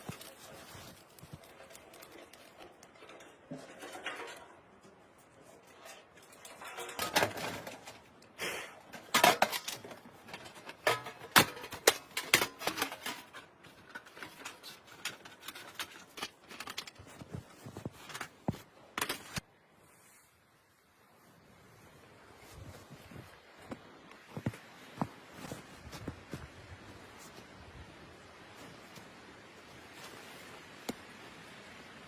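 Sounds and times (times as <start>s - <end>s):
objects being handled: 0.0s - 19.4s.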